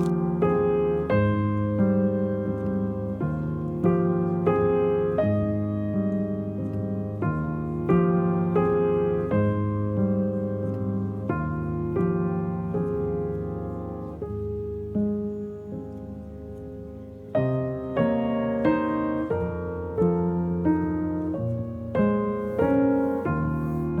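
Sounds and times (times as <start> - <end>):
slow gentle piano music: 0.0 - 24.0.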